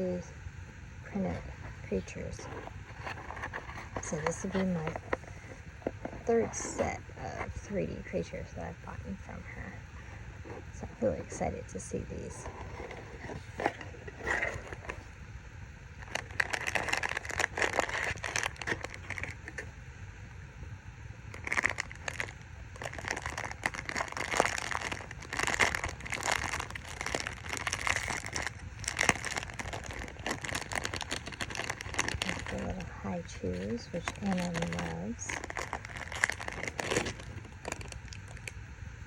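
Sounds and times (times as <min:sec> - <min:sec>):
packaging crinkling and rustling: 0:01.5 - 0:07.8, 0:12.0 - 0:15.2, 0:16.0 - 0:19.7, 0:21.3 - 0:38.6.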